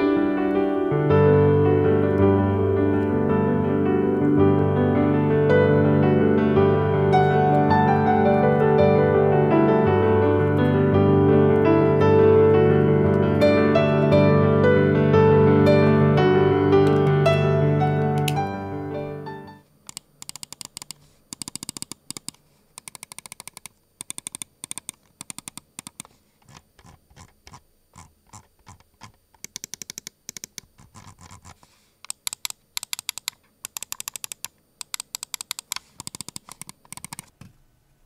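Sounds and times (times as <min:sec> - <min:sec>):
mouse buttons clicking: 0:19.9 - 0:37.3.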